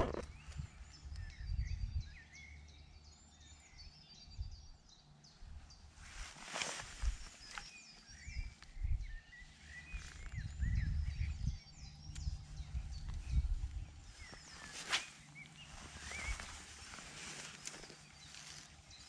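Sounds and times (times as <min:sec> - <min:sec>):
wind buffeting microphone: 0:00.0 - 0:02.4, 0:05.5 - 0:14.8
small birds singing: 0:00.0 - 0:19.0.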